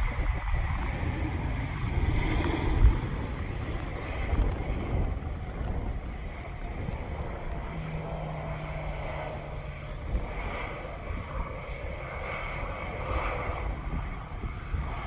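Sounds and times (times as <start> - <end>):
distant aircraft engines rumbling: 0.0 - 15.0
wind buffeting microphone: 0.0 - 15.0.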